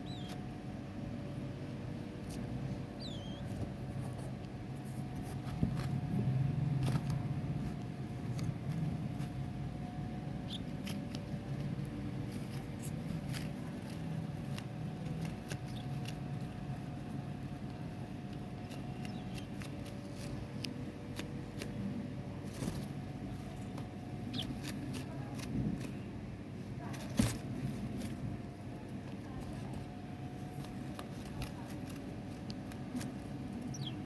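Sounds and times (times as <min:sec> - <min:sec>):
high bird chirps: 0:00.0 - 0:00.4, 0:03.0 - 0:03.5, 0:33.6 - 0:34.0
steady low hum: 0:00.0 - 0:34.0.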